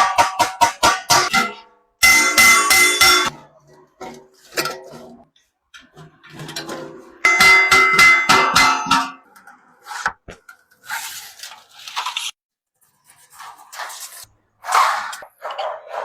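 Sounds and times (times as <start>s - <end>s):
hammer striking brass sheet: 0.0s - 3.3s, 7.3s - 9.2s.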